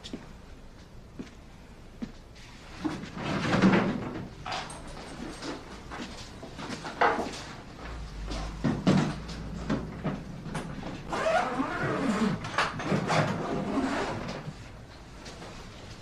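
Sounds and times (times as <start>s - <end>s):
low rumble: 7.8s - 11.1s.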